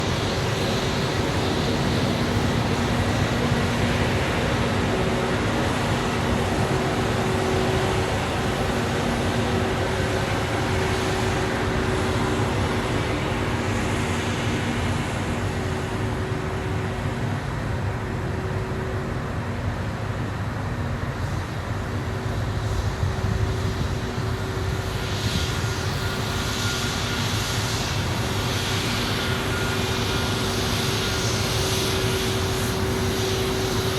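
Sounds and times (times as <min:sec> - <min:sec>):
jet engines running: 0:00.0 - 0:33.9.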